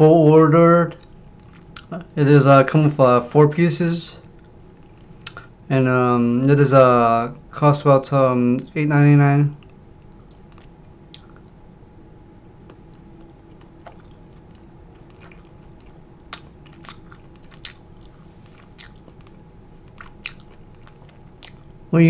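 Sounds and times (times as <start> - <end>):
steady low hum: 0.0 - 22.0
person chewing: 0.9 - 2.2, 4.2 - 5.5, 9.6 - 11.6, 12.3 - 21.8
small crunches and clicks: 9.5 - 11.6, 12.6 - 21.7.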